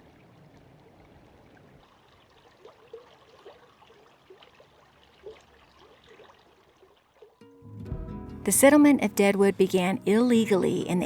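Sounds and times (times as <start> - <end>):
faint trickling water: 0.0 - 7.6.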